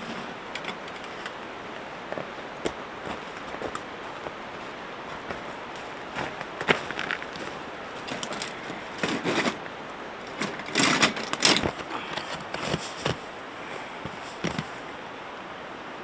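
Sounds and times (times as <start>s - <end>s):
scraping and rustling by hand: 0.0s - 15.0s.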